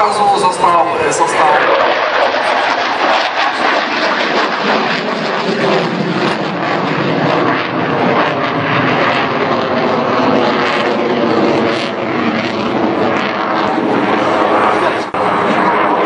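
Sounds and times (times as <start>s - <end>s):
fighter jet engine roar: 0.0s - 16.0s.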